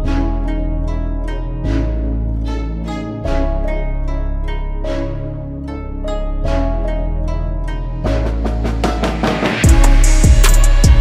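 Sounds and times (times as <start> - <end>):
deep bass: 0.0 - 11.0
background music with heavy drums: 8.1 - 11.0.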